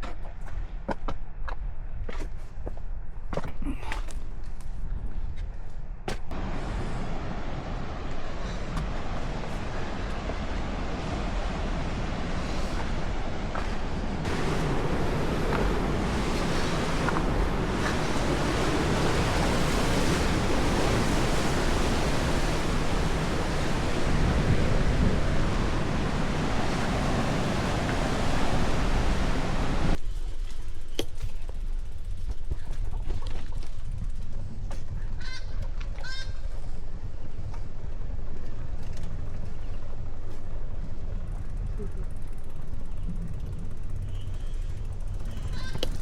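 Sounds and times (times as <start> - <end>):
wind buffeting microphone: 4.5 - 30.4, 31.6 - 46.0.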